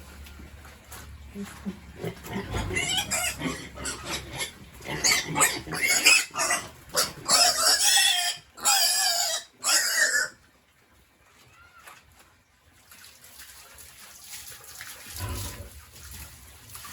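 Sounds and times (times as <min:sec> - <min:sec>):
pig squealing: 0:02.1 - 0:10.4.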